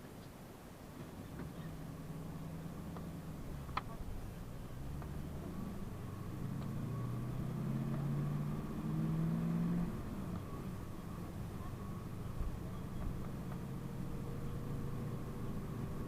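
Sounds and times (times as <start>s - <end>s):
bus engine pulling away: 1.0s - 16.0s.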